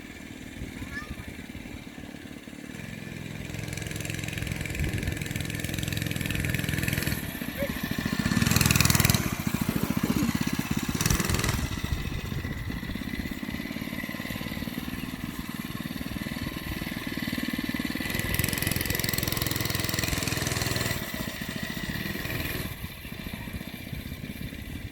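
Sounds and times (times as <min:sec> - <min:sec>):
small bike engine revving: 0:00.0 - 0:24.9.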